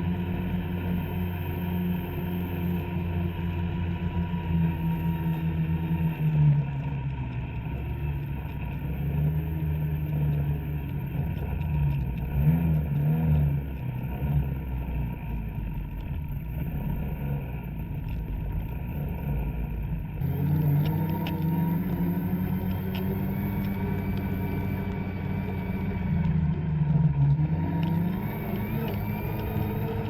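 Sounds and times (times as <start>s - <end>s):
snowmobile engine revving: 20.2s - 30.0s.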